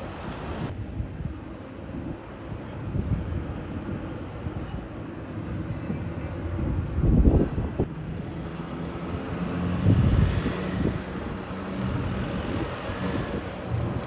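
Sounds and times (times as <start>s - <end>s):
vehicle engines passing on road: 3.1s - 14.0s.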